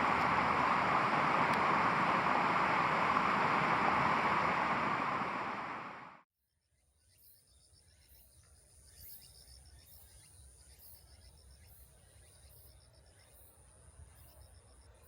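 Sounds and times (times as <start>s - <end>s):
insects chirping: 0.0s - 5.8s
loud rushing noise: 0.0s - 6.2s.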